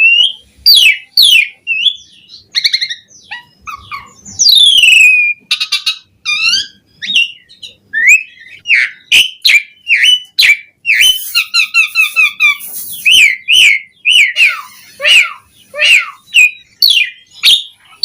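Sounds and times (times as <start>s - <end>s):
bird singing whistled song: 0.0s - 17.8s
bird harsh hiss: 11.1s - 13.1s.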